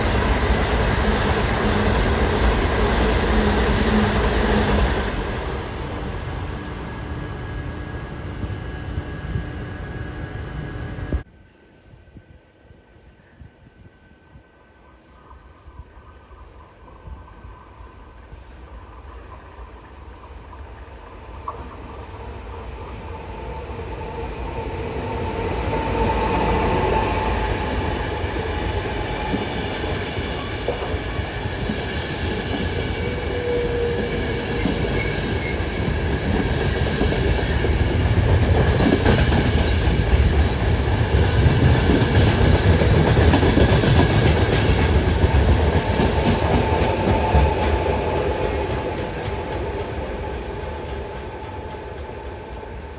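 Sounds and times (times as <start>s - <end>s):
train passing: 0.0s - 11.2s, 19.0s - 52.9s
whine of steady tones: 0.0s - 14.0s.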